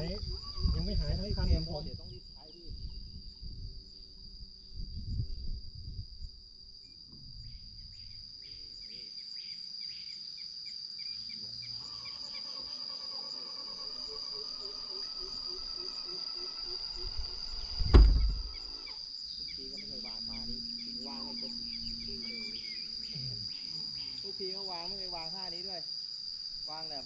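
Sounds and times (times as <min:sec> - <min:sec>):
insect chorus: 0:00.0 - 0:27.0
rhythmic calls: 0:11.9 - 0:24.4
dull low knocks: 0:17.6 - 0:18.7.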